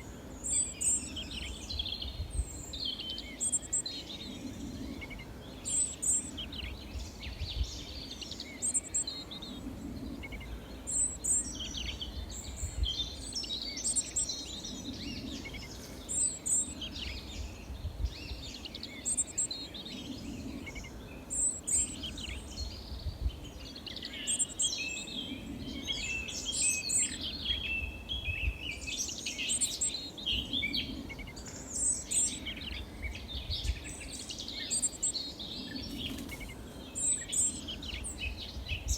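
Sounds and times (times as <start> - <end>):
songbirds chirping and trilling: 0.0 - 38.9
steady low rumble: 0.1 - 23.5.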